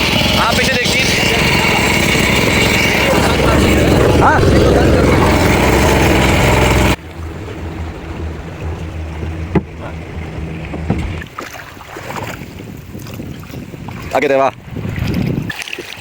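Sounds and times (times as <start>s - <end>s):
boat motor running loudly: 0.0s - 11.4s
low hum: 0.0s - 12.9s
sharp knocks: 5.6s - 11.3s.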